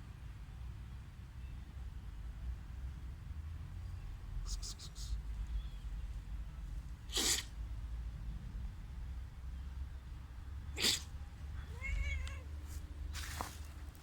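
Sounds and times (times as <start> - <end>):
sharp puffs of breath: 7.1 - 7.6
cat meowing: 10.8 - 12.7.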